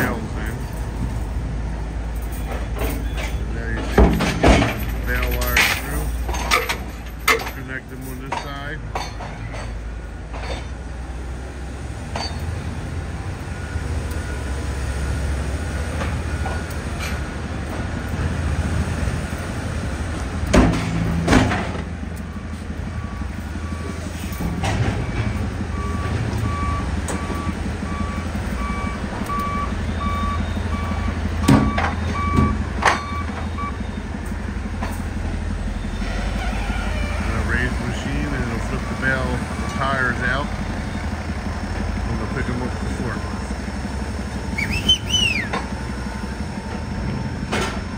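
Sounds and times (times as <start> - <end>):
baler machinery droning: 0.0 - 47.9
vehicle reversing alarm beeping: 12.1 - 17.3, 22.3 - 47.9.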